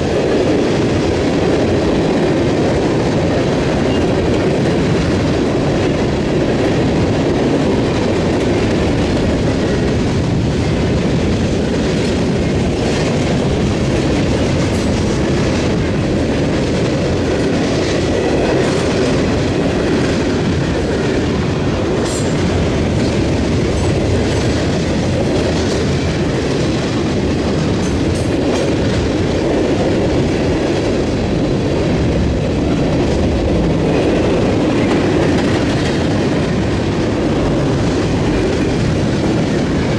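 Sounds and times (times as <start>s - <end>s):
train wheels clattering over rails: 0.0s - 39.9s.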